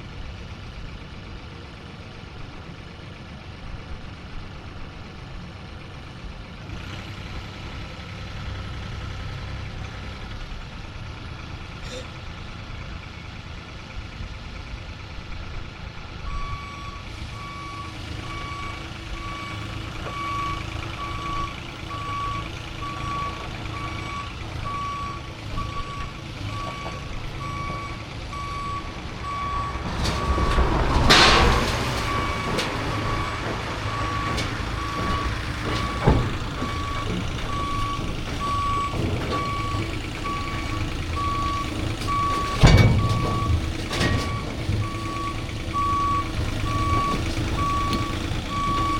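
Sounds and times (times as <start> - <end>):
engine rumble: 0.0 - 48.9
loud scraping and crunching: 26.6 - 48.9
backup alarm beeping: 32.0 - 48.9.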